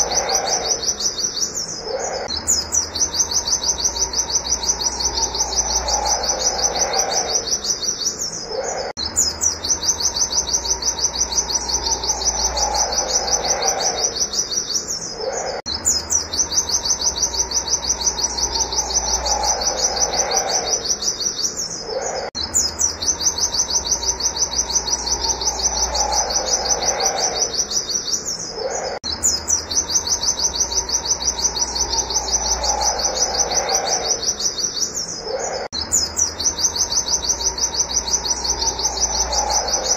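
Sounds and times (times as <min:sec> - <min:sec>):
bird singing high sharp notes: 0:00.0 - 0:39.9
lower falling bird call: 0:00.0 - 0:39.9.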